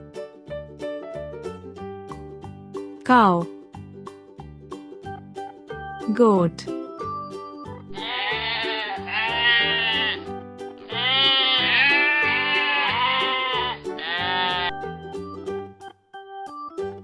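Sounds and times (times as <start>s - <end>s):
children's music with steady beat: 0.0s - 17.0s
goat bleating: 7.9s - 14.8s.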